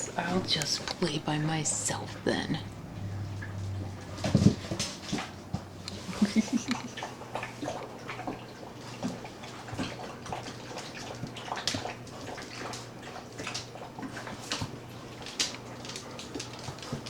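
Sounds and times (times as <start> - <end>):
low steady hum: 0.0 - 17.0
puppy paws clicking and scuffing: 3.3 - 6.8, 7.8 - 17.0.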